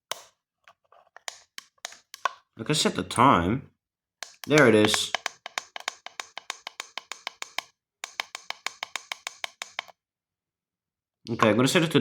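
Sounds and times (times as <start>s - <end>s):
alarm clock clicks: 4.2s - 9.9s.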